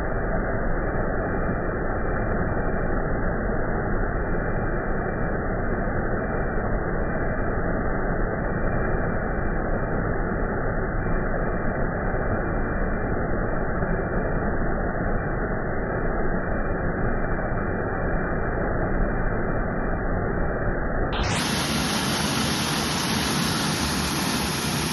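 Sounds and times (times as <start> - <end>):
waterfall roaring: 21.2 - 24.9.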